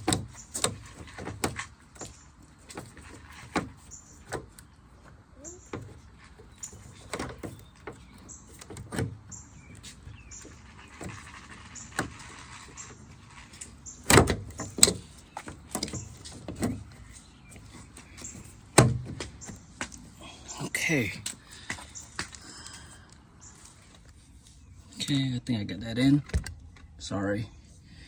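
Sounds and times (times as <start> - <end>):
hands working inside car door: 0.0 - 4.7, 5.7 - 20.0.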